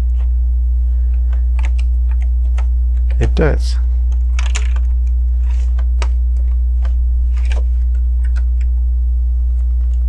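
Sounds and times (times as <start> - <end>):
steady low hum: 0.0 - 10.0
plastic bricks clicking and rattling: 4.1 - 8.7.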